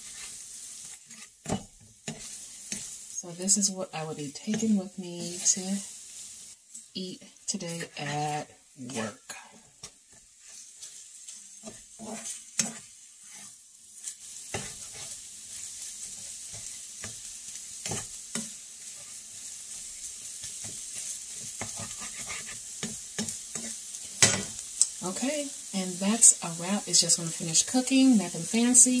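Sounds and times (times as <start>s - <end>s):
utensil scraping a pan: 0.0s - 3.0s, 7.5s - 9.2s, 9.8s - 17.2s, 17.8s - 19.2s, 19.8s - 24.6s
food sizzling in a frying pan: 0.0s - 29.0s.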